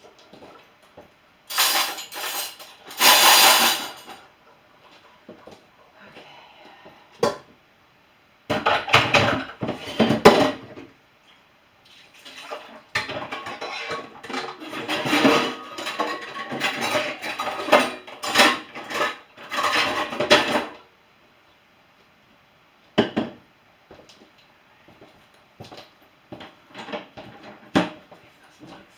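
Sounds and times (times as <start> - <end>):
dishes and cutlery clattering: 1.5 - 4.3, 8.5 - 10.8, 12.2 - 20.8.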